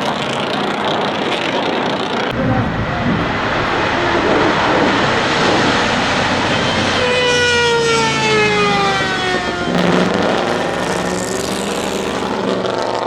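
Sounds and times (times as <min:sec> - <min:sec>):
car engine passing by: 0:02.3 - 0:12.8
low engine rumble: 0:02.3 - 0:12.8
racing car engine at speed: 0:02.3 - 0:13.0.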